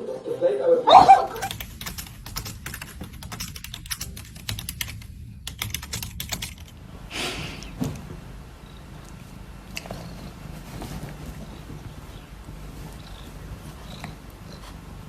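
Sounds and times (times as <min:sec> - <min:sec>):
light clicks and taps: 0:01.3 - 0:06.8
rustle: 0:07.0 - 0:15.0.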